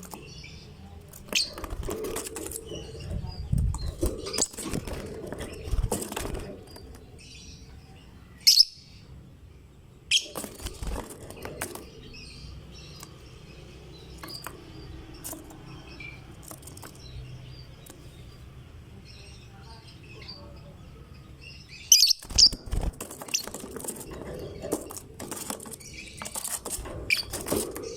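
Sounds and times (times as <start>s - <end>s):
lovebird chirps and clicks: 14.1s - 18.0s.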